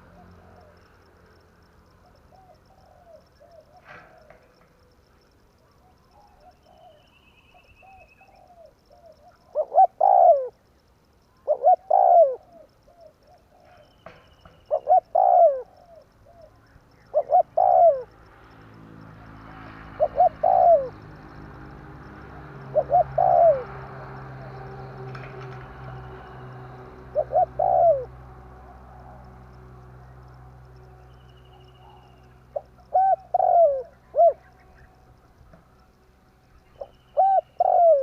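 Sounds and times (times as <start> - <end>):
dove cooing: 0.0 - 0.8, 2.0 - 5.0, 7.6 - 10.6, 11.4 - 18.2, 19.7 - 21.5, 22.2 - 29.4, 31.6 - 35.0, 36.7 - 38.0.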